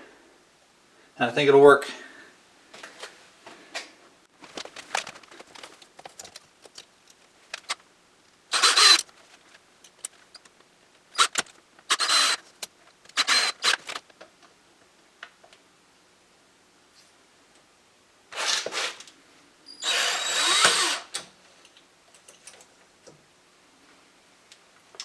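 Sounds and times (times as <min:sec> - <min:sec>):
handling clicks and rustles: 0:04.3 - 0:07.9
power drill driving a screw: 0:08.5 - 0:09.0, 0:11.2 - 0:12.4, 0:13.2 - 0:13.8, 0:18.4 - 0:18.9, 0:19.8 - 0:21.2.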